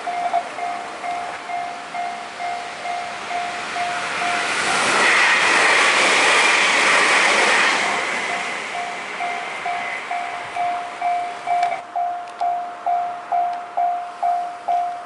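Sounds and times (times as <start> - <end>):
level-crossing warning bell dinging: 0.0 - 5.0, 8.3 - 15.0
train rushing past: 0.0 - 15.0.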